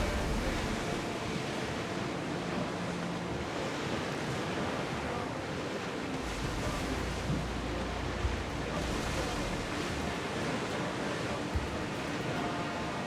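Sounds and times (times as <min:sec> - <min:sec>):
low rumble: 0:00.0 - 0:01.2, 0:06.2 - 0:10.2
sea waves rushing: 0:00.0 - 0:13.0
wind: 0:00.0 - 0:13.0.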